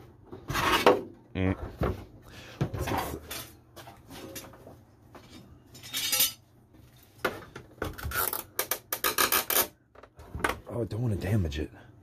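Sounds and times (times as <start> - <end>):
plastic parts clicking and knocking: 7.2 - 10.7.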